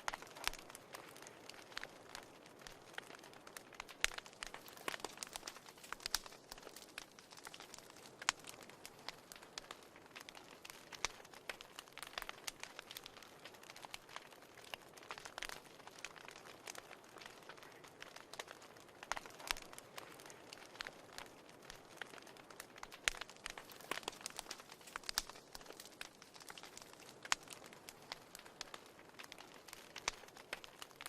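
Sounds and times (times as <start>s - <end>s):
fireplace fire crackling: 0.0s - 31.0s.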